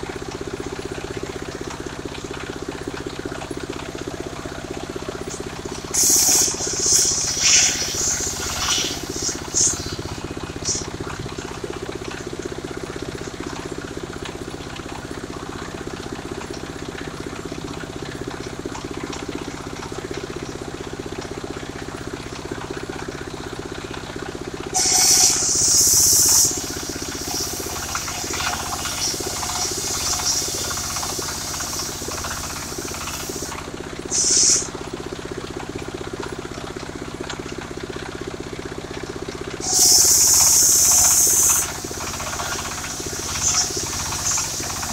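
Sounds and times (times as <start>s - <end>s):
sawmill engine humming: 0.0s - 18.6s, 21.0s - 44.9s
loud high hissing bursts: 5.9s - 10.8s, 24.8s - 33.5s, 34.1s - 34.7s, 39.6s - 44.9s.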